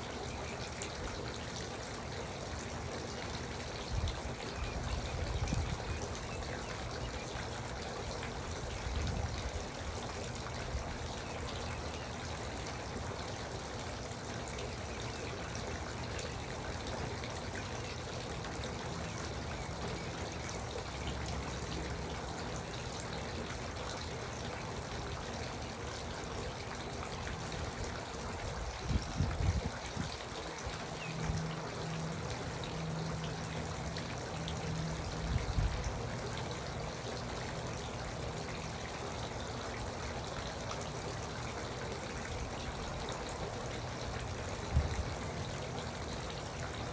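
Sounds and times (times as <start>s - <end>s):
fountain water trickling and splashing: 0.0s - 46.9s.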